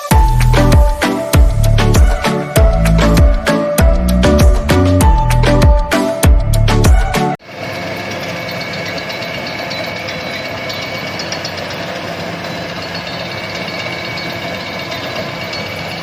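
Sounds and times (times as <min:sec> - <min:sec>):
combine harvester engine drone: 0:07.4 - 0:16.0.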